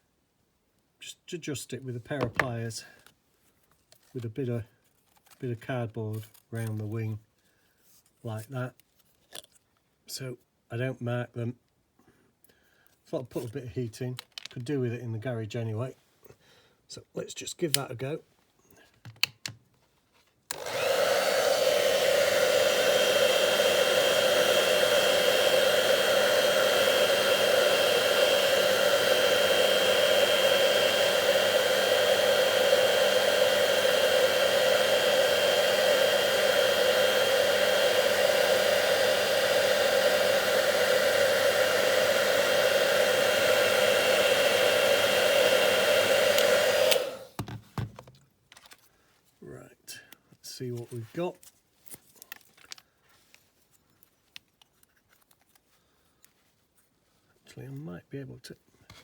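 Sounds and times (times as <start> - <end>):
hairdryer blowing: 2.2 - 2.5, 20.5 - 47.9.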